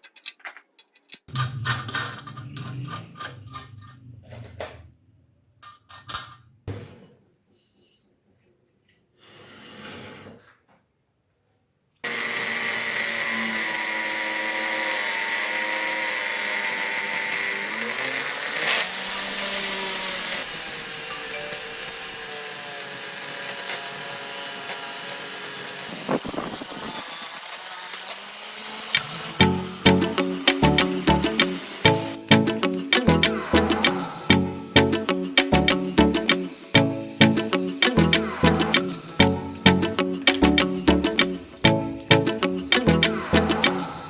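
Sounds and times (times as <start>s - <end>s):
power tool running: 12.0s - 44.0s.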